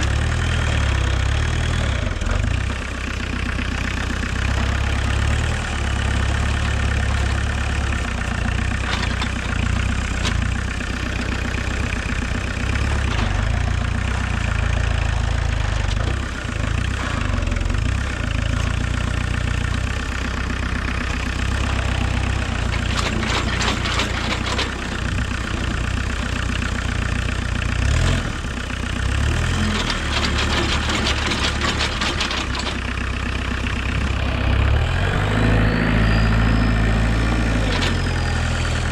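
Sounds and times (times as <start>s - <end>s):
tractor diesel engine running: 0.0s - 38.9s
rattling clatter: 6.0s - 13.5s, 21.4s - 27.4s, 29.5s - 34.1s.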